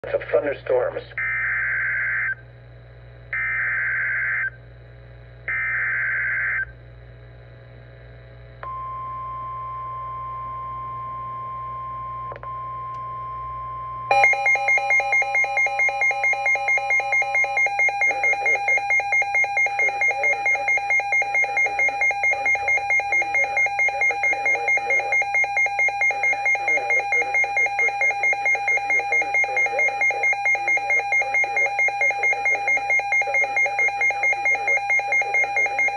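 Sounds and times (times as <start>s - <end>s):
buzzing data bursts: 14.1s - 35.9s
rapid alarm beeping: 14.1s - 35.9s
steady warning alarm tone: 14.1s - 35.9s.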